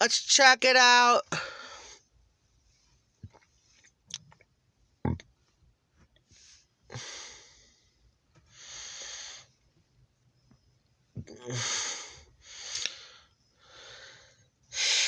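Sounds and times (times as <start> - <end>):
close breathing: 1.3 - 3.4, 6.2 - 9.6, 11.2 - 15.0.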